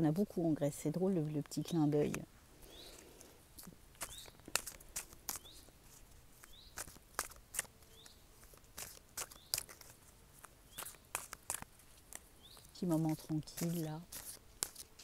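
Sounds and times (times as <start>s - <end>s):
small bird chirping: 1.5s - 3.1s, 4.0s - 4.6s, 5.3s - 5.7s, 6.4s - 7.0s, 7.8s - 8.3s, 9.2s - 9.9s, 10.6s - 11.3s, 12.3s - 14.0s.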